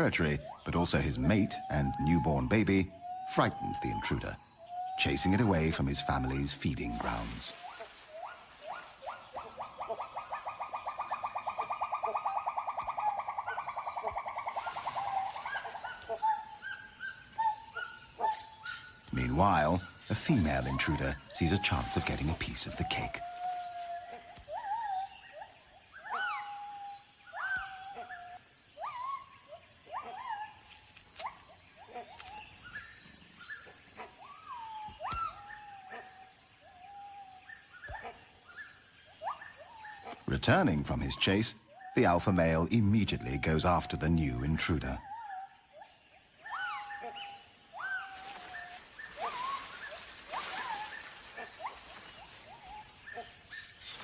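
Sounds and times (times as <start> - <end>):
gibbon calling: 0.0 - 54.0
gibbons whooping: 19.2 - 29.2, 34.2 - 36.2, 46.4 - 53.3.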